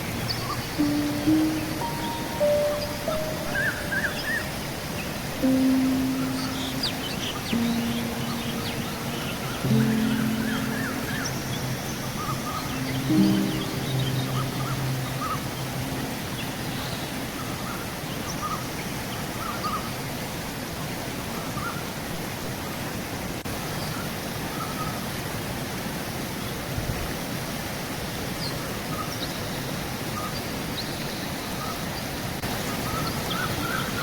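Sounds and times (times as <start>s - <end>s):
birds chirping: 0.0s - 18.6s
river water running: 0.0s - 34.0s.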